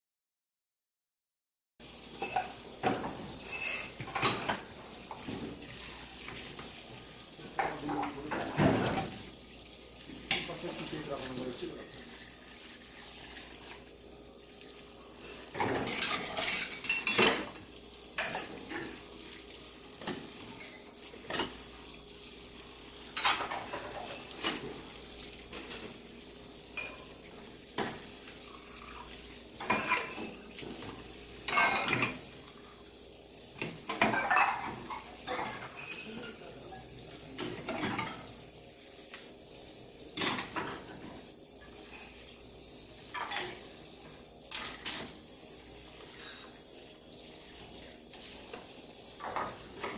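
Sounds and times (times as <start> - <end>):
pots clattering and knocking: 2.1 - 6.8, 7.4 - 9.3, 15.5 - 19.0, 20.0 - 21.7, 23.1 - 24.9, 29.6 - 32.4, 33.6 - 36.5, 37.3 - 38.4, 40.2 - 41.8, 43.1 - 43.7, 44.5 - 45.2, 48.5 - 49.9.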